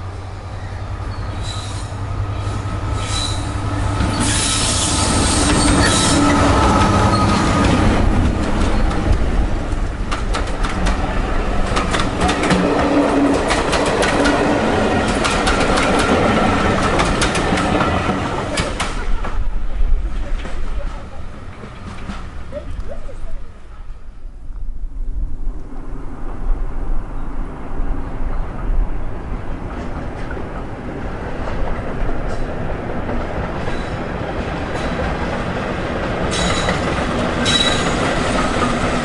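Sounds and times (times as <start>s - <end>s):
diesel locomotive engine droning: 0.0s - 39.0s
train wheels clicking over rail joints: 2.9s - 22.5s, 31.4s - 39.0s.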